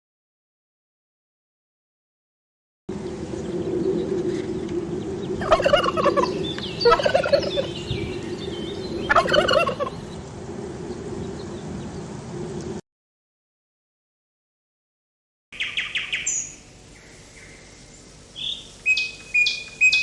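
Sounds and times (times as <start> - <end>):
fowl warbling calls: 5.4 - 10.2.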